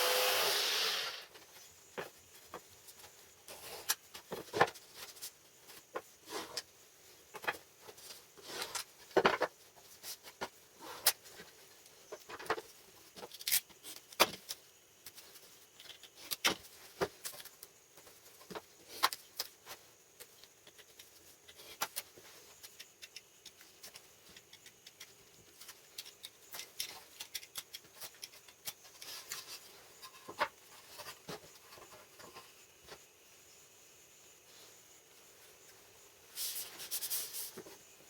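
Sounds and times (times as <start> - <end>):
small hard objects clicking: 22.6 - 29.4.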